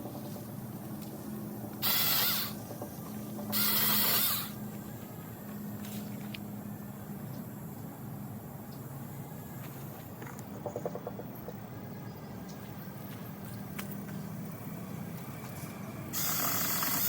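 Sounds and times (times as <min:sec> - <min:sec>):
electric chainsaw bursts: 0:01.8 - 0:02.6, 0:03.5 - 0:04.6, 0:16.1 - 0:17.0.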